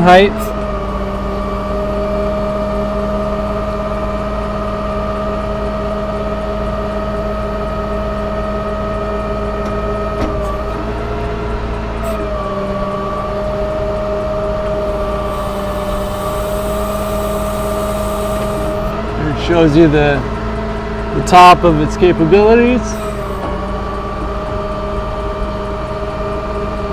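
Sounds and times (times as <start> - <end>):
diesel truck engine droning: 0.0 - 26.9.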